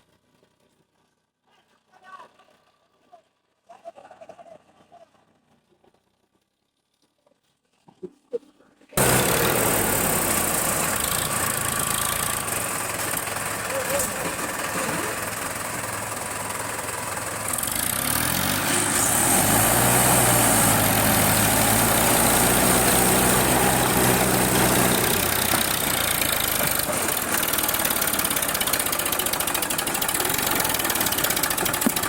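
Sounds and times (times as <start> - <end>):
tractor diesel engine revving: 9.0 - 32.0.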